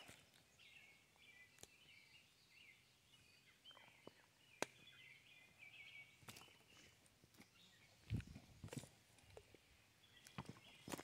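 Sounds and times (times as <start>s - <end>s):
faint birds singing: 0.0s - 11.0s.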